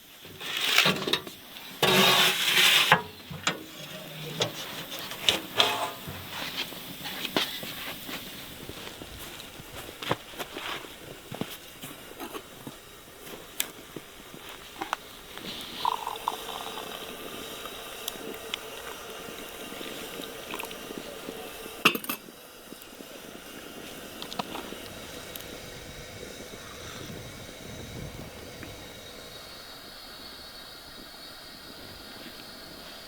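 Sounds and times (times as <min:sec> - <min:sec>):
liquid pouring or bubbling: 0:14.8 - 0:29.3
dishes clinking: 0:21.8 - 0:22.2.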